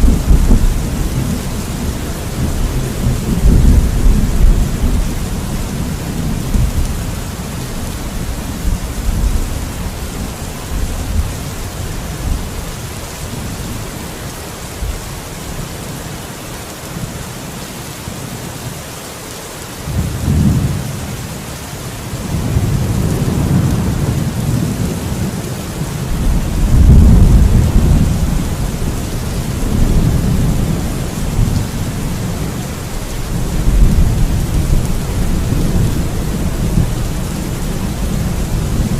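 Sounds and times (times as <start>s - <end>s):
rolling thunder: 0.0s - 11.6s, 26.0s - 38.9s
steady rain: 0.0s - 38.9s.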